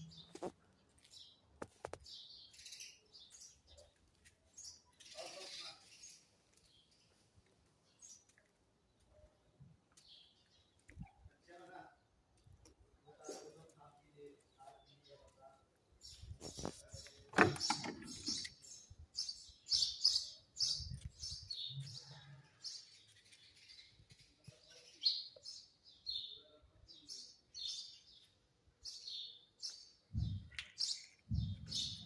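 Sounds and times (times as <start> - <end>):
small birds chirping: 0.0 - 32.0
dull low thumps: 30.1 - 30.5, 31.3 - 32.0.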